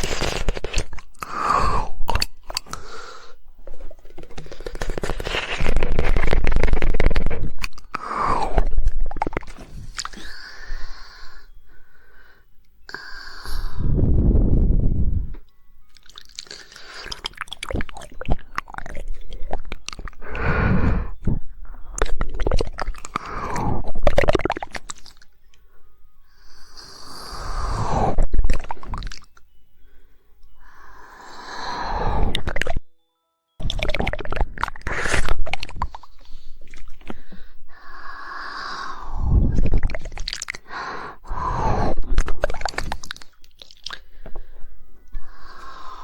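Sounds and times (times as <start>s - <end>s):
tongue clicks: 0.0s - 3.0s, 4.2s - 10.6s, 15.3s - 20.5s, 21.2s - 25.6s, 26.5s - 29.5s, 32.2s - 32.8s, 33.6s - 37.2s, 37.8s - 44.3s
wet mouth noises: 0.0s - 11.2s, 12.9s - 25.4s, 26.6s - 29.4s, 31.9s - 32.8s, 33.6s - 44.4s.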